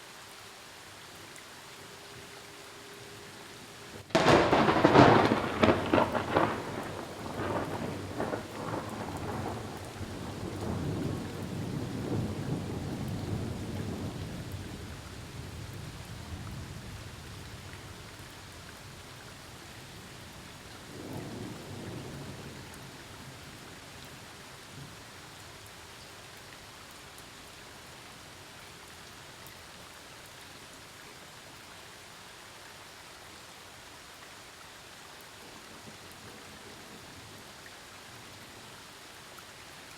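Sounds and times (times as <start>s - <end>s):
steady rain: 0.0s - 39.9s
thunder rumbling: 4.1s - 17.0s.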